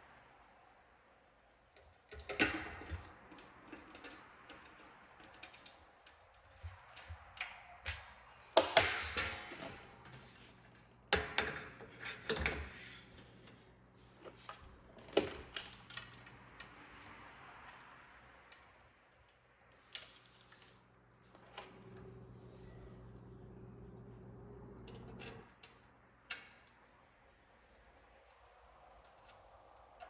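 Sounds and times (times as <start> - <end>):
faint steady hum: 0.0 - 30.0
hard objects knocking and clicking: 6.5 - 9.8.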